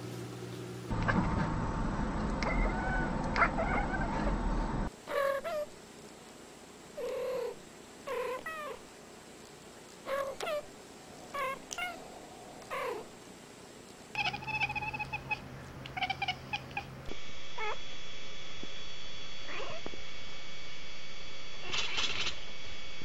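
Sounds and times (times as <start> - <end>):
faint high whine: 1.2 - 23.0
cat meowing: 2.4 - 4.3, 10.1 - 10.7, 11.3 - 12.0, 14.2 - 16.9
cat yowling: 2.4 - 4.3, 10.1 - 10.7, 11.3 - 13.1, 14.2 - 17.0, 19.5 - 19.8.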